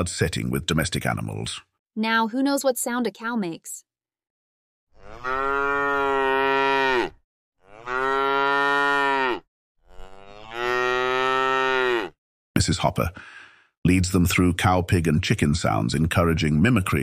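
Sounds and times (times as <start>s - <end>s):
cow mooing: 5.0s - 12.2s.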